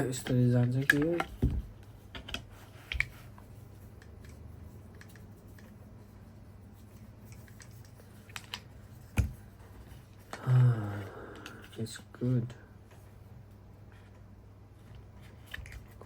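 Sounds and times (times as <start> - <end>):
faint low hum: 0.0 - 16.0
plastic clicks and knocks: 0.1 - 3.2.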